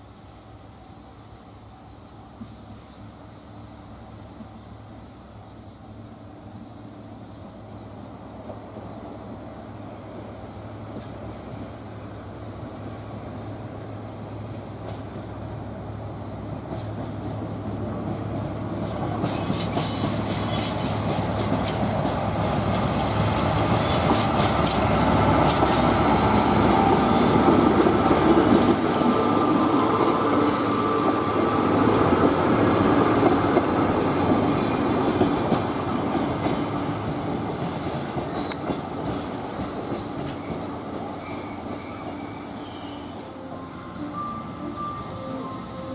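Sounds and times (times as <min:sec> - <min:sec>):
train passing: 0:00.0 - 0:45.9
high-pitched wheel squeal: 0:19.3 - 0:21.3, 0:28.6 - 0:31.9, 0:38.9 - 0:45.9.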